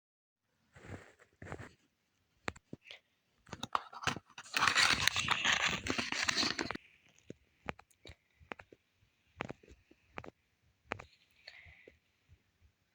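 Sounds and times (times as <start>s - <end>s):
packaging taps and clicks: 3.5s - 6.8s
plastic wrap crinkling and tearing: 3.6s - 6.8s.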